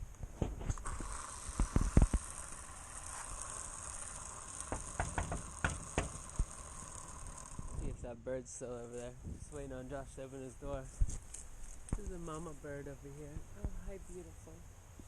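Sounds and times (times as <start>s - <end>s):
light rain hiss: 0.0s - 15.0s
sharp clicks and knocks: 4.6s - 6.5s.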